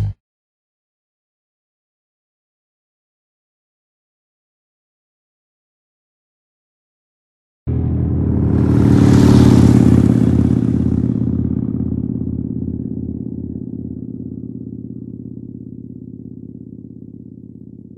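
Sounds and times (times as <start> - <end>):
motorcycle engine revving and idling: 7.7 - 17.9.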